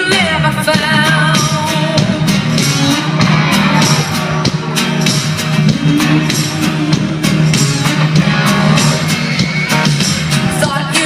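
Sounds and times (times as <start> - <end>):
drums striking a steady beat: 0.0 - 11.0
guitar: 0.0 - 11.0
sustained low bass: 0.4 - 10.5.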